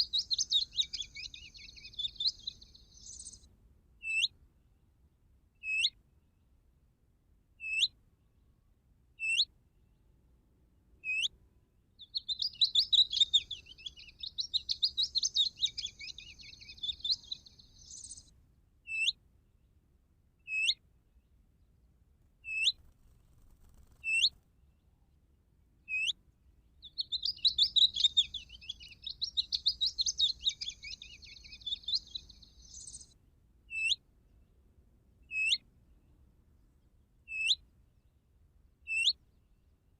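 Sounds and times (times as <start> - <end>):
scratchy warbling birdsong: 0.0 - 3.4, 12.1 - 18.3, 26.8 - 33.1
bird call notes from bird caller: 26.9 - 33.0.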